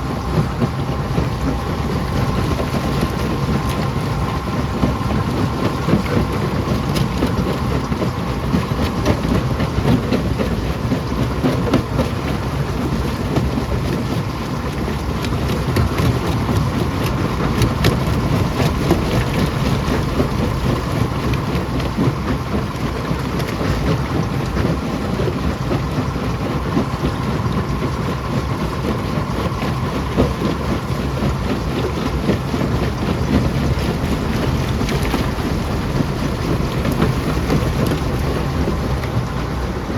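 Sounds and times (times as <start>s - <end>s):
rock crusher rumbling: 0.0s - 10.0s, 14.8s - 24.0s, 30.8s - 39.9s.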